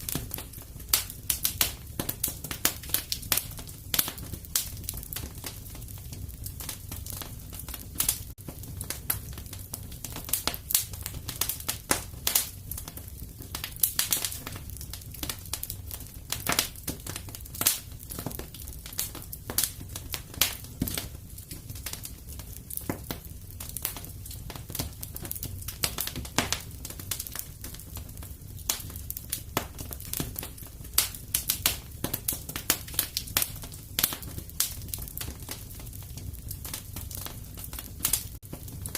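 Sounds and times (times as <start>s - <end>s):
fire crackling: 0.0s - 38.9s.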